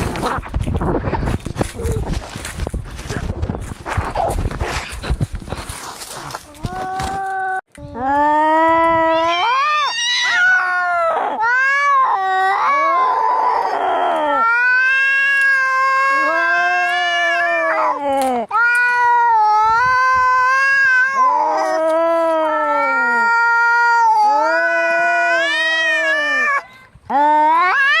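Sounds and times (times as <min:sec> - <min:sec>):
cats yowling: 0:09.0 - 0:18.0, 0:18.6 - 0:28.0.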